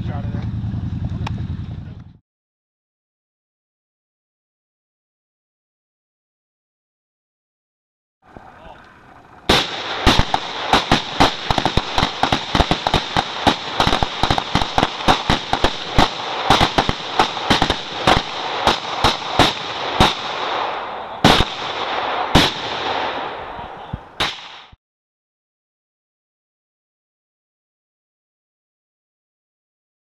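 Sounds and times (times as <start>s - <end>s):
firecracker bangs: 9.5s - 24.8s
firecrackers going off: 9.5s - 24.8s.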